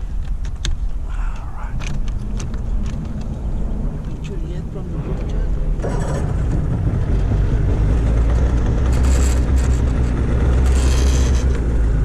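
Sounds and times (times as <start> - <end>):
outboard motor running: 5.8 - 12.0.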